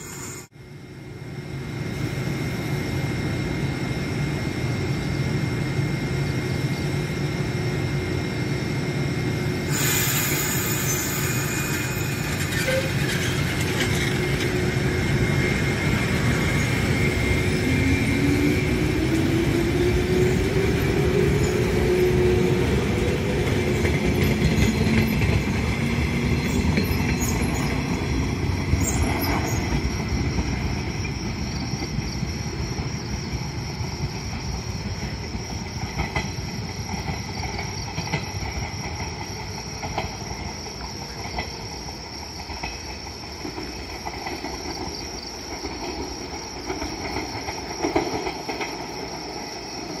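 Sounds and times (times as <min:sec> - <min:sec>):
electric train running: 0:03.6 - 0:50.0
wheels clattering over rail joints: 0:11.6 - 0:14.8.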